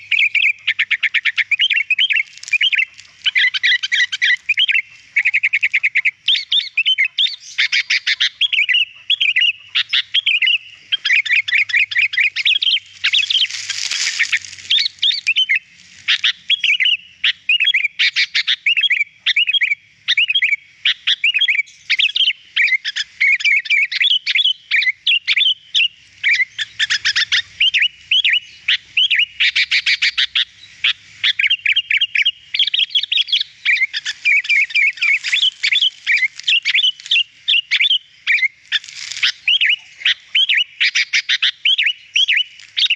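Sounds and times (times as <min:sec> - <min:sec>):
bulbul singing: 0:00.0 - 0:42.9.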